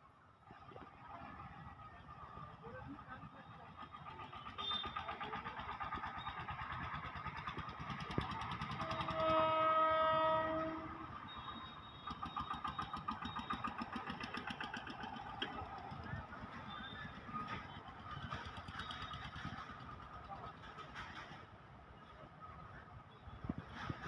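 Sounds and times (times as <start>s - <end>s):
train rumbling: 0.2s - 24.0s
wheels clattering on rails: 0.5s - 24.0s
train horn: 8.7s - 11.9s.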